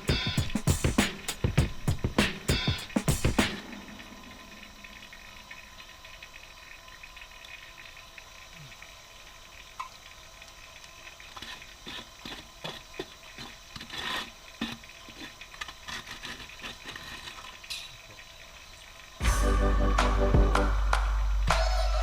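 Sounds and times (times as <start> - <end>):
faint steady hum: 0.0 - 22.0
water trickling and dripping: 3.6 - 19.2.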